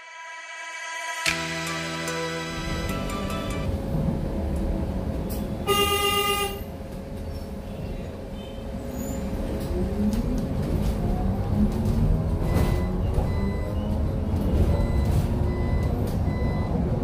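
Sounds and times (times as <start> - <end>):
bus engine and road rumble: 2.5 - 17.0
bus horn blast: 5.6 - 6.8.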